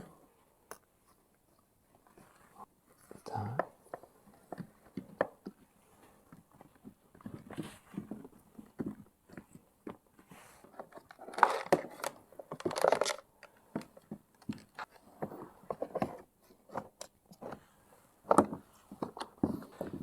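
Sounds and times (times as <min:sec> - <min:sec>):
plastic parts scraping: 0:10.7 - 0:17.6
plastic parts clicking and knocking: 0:10.7 - 0:20.0.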